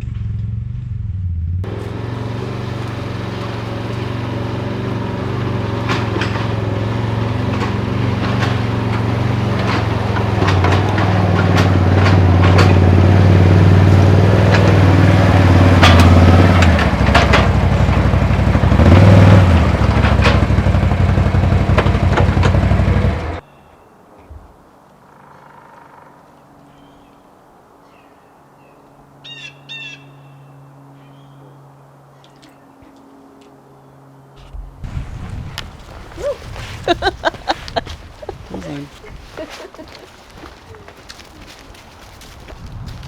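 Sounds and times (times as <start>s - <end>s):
atv engine running: 0.0s - 23.4s, 34.3s - 43.0s
loose gear rattling: 3.0s - 18.1s.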